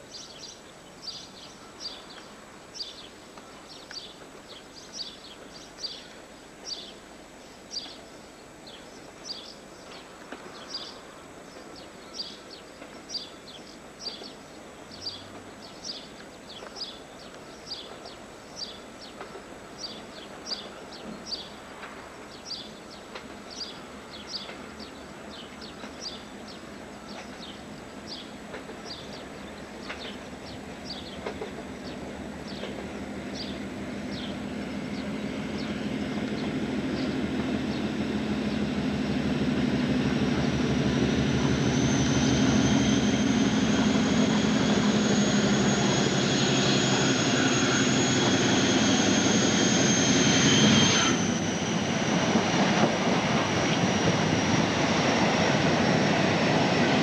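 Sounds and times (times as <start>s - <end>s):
diesel locomotive rumble: 24.3s - 57.0s.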